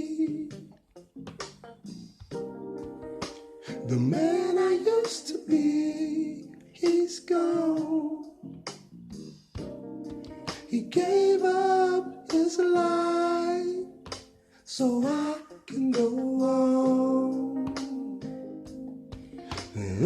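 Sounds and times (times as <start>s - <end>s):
person singing: 0.0s - 0.7s, 3.6s - 8.4s, 10.5s - 13.9s, 14.7s - 18.4s, 19.4s - 20.0s
instrumental accompaniment: 0.1s - 20.0s.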